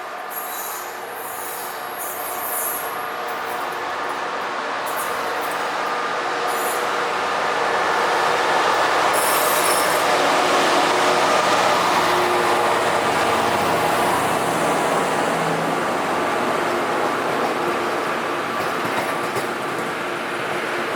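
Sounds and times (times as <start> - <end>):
train wheels squealing: 0.0 - 4.2, 4.9 - 5.9, 6.5 - 7.0, 9.1 - 10.8
train running on rails: 0.0 - 20.9.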